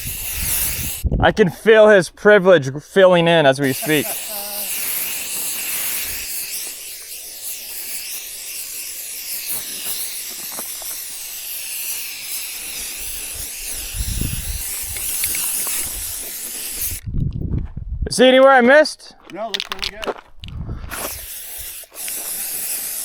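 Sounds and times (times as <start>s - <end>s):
spray paint can hissing: 0.0s - 1.1s, 3.6s - 17.0s, 20.9s - 23.0s.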